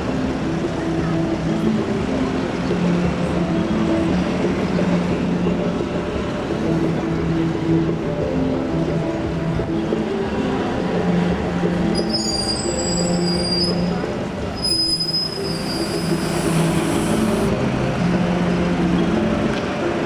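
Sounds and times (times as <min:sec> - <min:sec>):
bus engines idling: 0:00.0 - 0:20.0
tram wheels squealing on track: 0:11.6 - 0:17.5.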